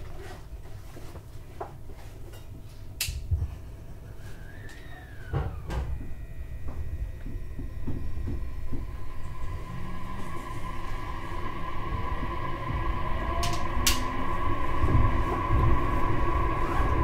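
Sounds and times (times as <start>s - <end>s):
low train cabin hum: 3.0s - 17.0s
traction equipment whine: 4.0s - 17.0s
rising and falling tone: 4.2s - 17.0s.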